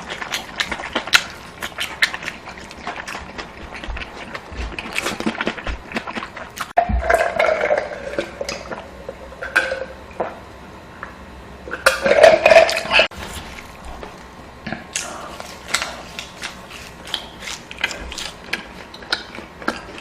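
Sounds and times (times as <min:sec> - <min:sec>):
wet chewing and slurping noodles: 0:00.0 - 0:07.3, 0:14.9 - 0:20.0.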